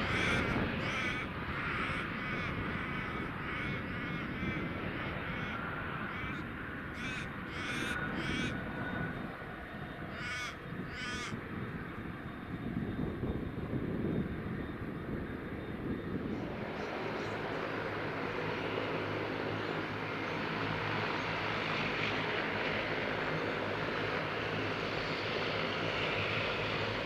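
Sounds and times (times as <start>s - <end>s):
crow cawing: 0.0s - 8.6s, 10.1s - 11.4s.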